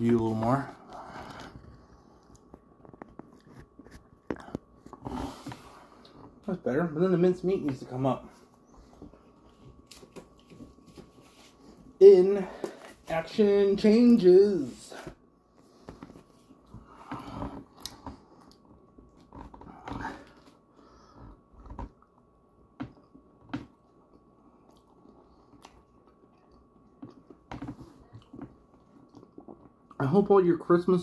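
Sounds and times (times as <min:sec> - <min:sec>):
chewing and mouth sounds: 0:24.0 - 0:30.0.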